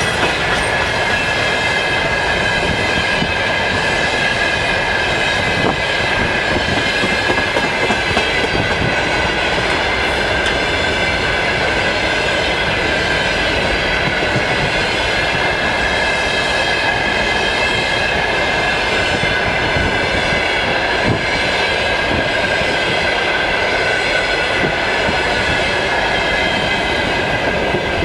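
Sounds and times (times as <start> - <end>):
clatter over rail joints: 0.0 - 2.8
train wheels rumbling on rail: 0.0 - 28.0.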